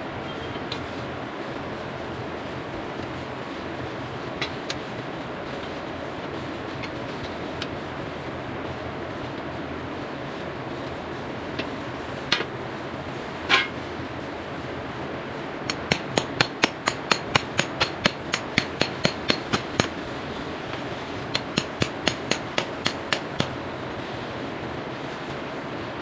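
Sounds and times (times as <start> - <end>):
hammer striking steel chisel: 15.7 - 20.0, 21.3 - 23.6.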